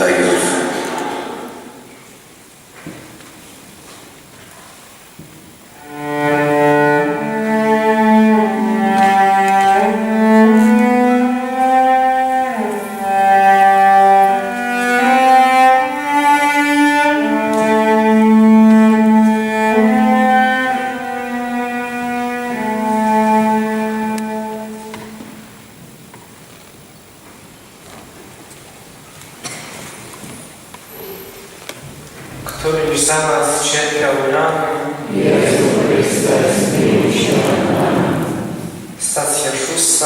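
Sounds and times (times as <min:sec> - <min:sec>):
cello and violin music: 0:00.0 - 0:01.7, 0:05.8 - 0:25.7, 0:32.5 - 0:40.0.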